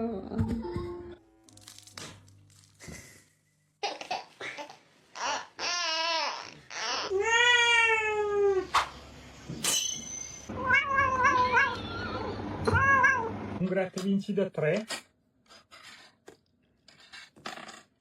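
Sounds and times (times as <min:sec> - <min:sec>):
cat meowing: 0:10.6 - 0:13.4.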